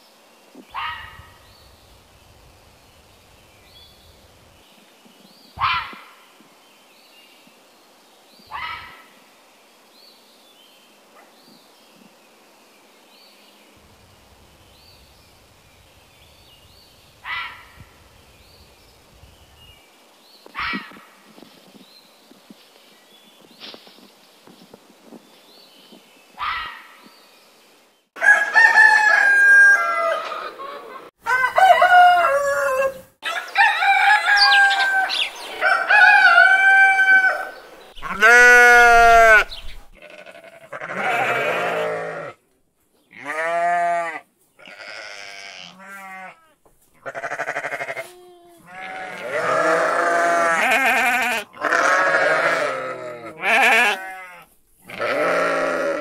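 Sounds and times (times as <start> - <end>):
animal cries and bleats: 36.5 - 42.4, 43.1 - 56.0.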